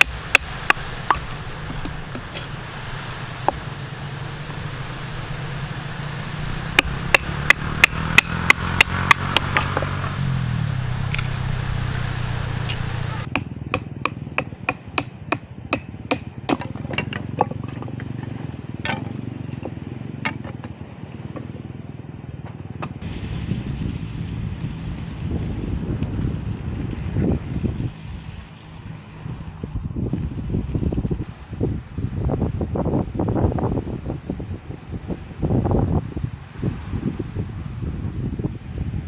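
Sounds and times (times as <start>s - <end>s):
firewood being chopped: 0.0s - 13.3s.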